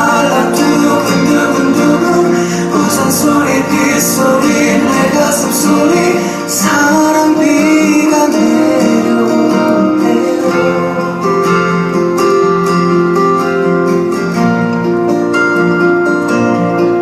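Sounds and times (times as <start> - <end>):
person singing ballad: 0.0 - 12.1
acoustic guitar chords: 0.0 - 17.0.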